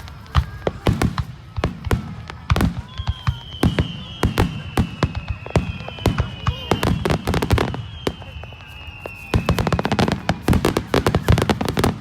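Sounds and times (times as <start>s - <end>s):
fireworks banging: 0.0s - 12.0s
high thin falling whistle: 2.9s - 10.4s.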